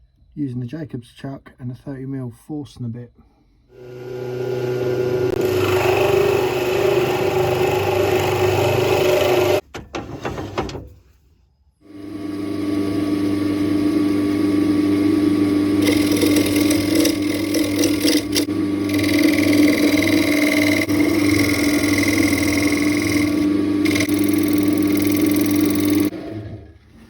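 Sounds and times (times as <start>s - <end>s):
drill bit cutting wood: 3.8s - 9.6s, 12.0s - 26.1s
wood lathe motor hum: 3.8s - 9.6s, 11.9s - 26.2s.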